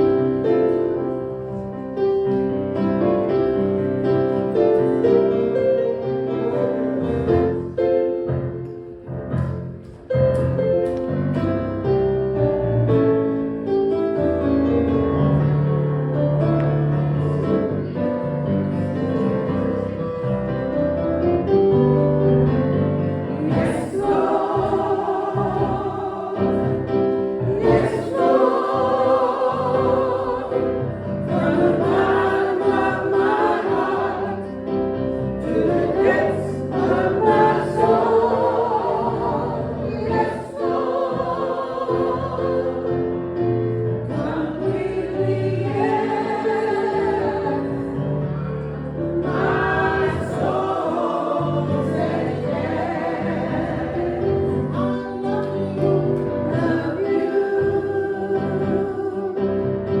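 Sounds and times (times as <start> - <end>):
choir and congregation singing hymn: 0.0 - 9.8, 13.6 - 60.0.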